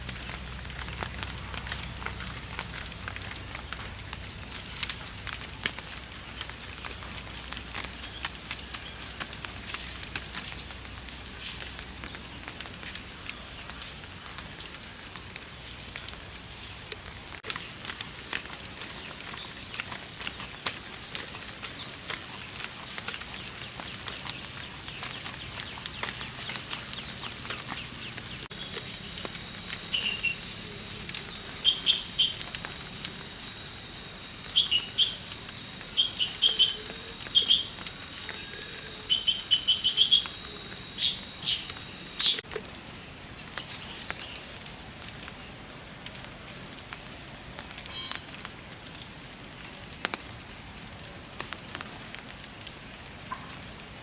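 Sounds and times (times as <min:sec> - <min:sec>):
insects trilling: 0:00.0 - 0:54.0
short bird chirps: 0:28.3 - 0:42.4.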